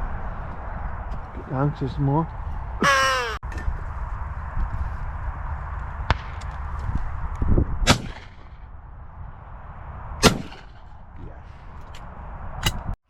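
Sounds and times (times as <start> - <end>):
shotgun shots: 7.8 - 8.6, 10.2 - 10.8.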